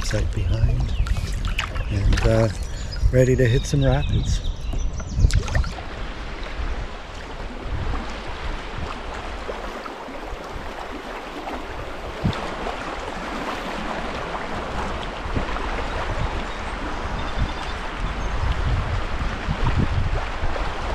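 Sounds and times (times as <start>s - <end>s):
river water rushing and splashing: 5.3s - 20.9s.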